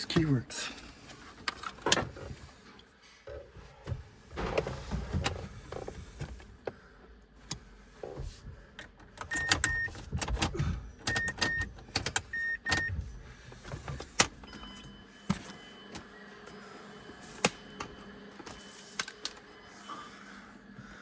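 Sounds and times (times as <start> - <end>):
car key clicking in ignition: 9.2 - 12.9.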